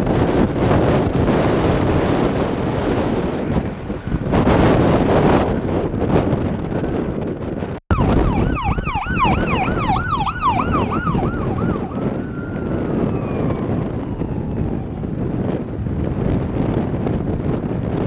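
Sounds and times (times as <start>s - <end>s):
wind buffeting microphone: 0.0s - 18.0s
emergency siren yelping and wailing: 0.1s - 5.5s, 7.9s - 15.4s.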